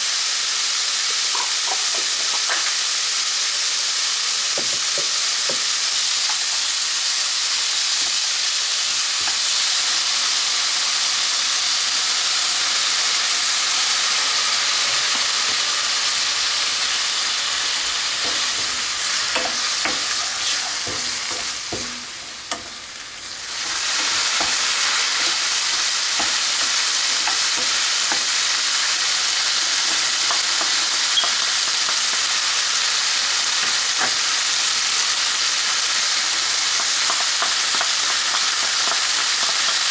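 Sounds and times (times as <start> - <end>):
food sizzling in a pan: 0.0 - 39.9
utensil scraping a pan: 17.9 - 22.8, 23.5 - 28.4.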